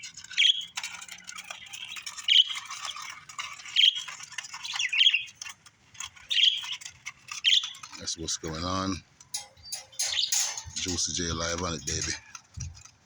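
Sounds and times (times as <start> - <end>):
bird squawk: 3.8 - 5.3, 6.3 - 6.8, 9.4 - 10.9
budgerigars chattering: 6.3 - 6.8, 9.4 - 11.2.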